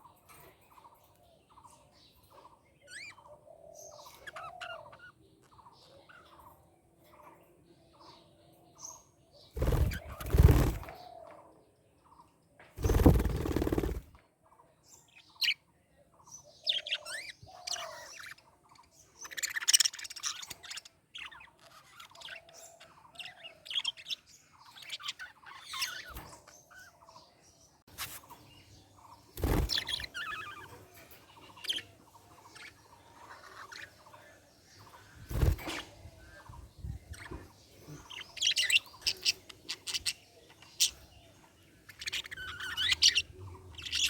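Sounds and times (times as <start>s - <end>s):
budgerigars chirping: 2.3s - 6.6s, 16.4s - 27.1s, 28.0s - 44.0s
harsh bird calls: 8.8s - 11.5s, 16.3s - 44.0s.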